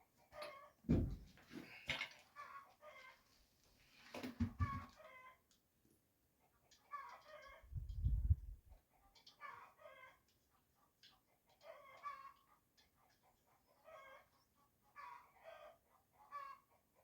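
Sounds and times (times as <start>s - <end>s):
chicken clucking: 1.9s - 3.3s, 4.4s - 5.6s, 6.3s - 17.0s.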